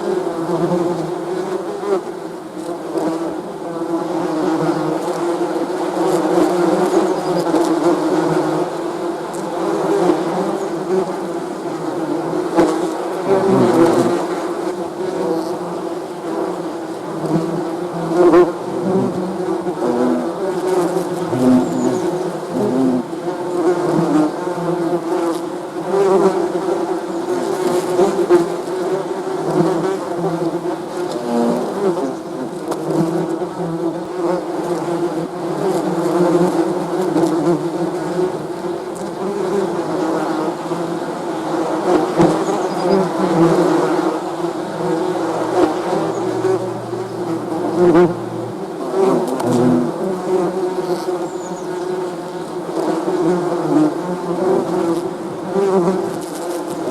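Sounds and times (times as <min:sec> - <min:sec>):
bees buzzing: 0:09.4 - 0:25.2, 0:25.8 - 0:56.9.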